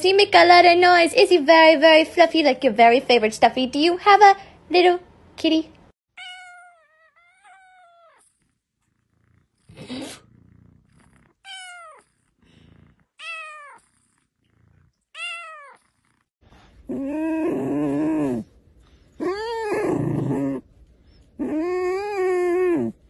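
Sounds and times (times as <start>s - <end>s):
cat meowing: 6.2s - 8.2s, 11.4s - 12.1s, 13.2s - 13.8s, 15.1s - 15.8s
breathy sounds: 12.1s - 13.2s.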